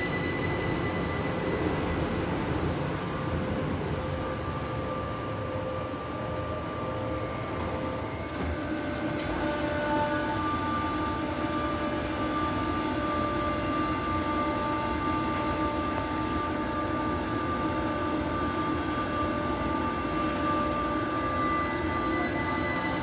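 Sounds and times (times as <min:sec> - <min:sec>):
train rumble: 0:00.0 - 0:23.0.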